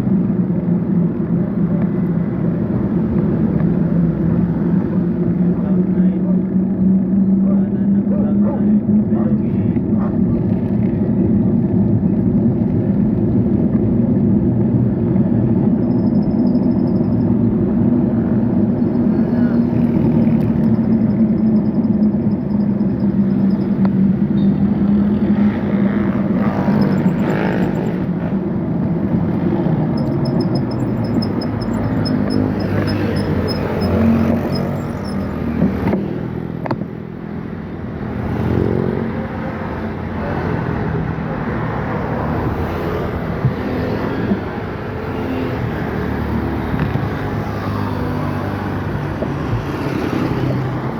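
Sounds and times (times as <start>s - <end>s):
vehicle engines droning: 0.0s - 50.9s
vehicles passing: 0.0s - 50.9s.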